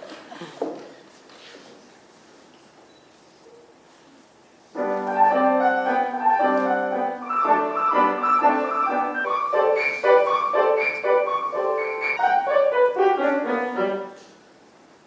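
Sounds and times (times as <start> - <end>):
classical piano chords: 4.7 - 14.3.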